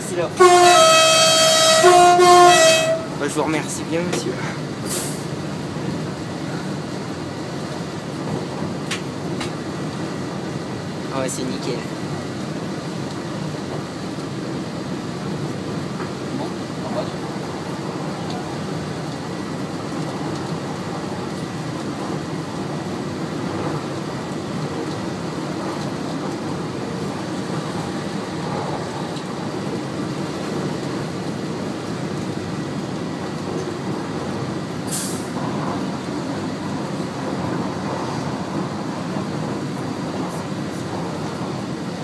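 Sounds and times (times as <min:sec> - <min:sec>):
electric train running: 0:00.0 - 0:10.8
short sharp hiss: 0:04.9 - 0:05.2, 0:34.9 - 0:35.3.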